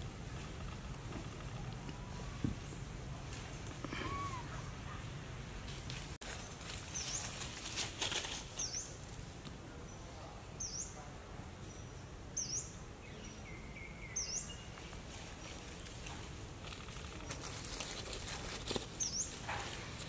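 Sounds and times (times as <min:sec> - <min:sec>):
rustling noise: 0:05.5 - 0:09.4, 0:14.8 - 0:20.0
bird chirping: 0:09.8 - 0:11.0, 0:11.6 - 0:15.7.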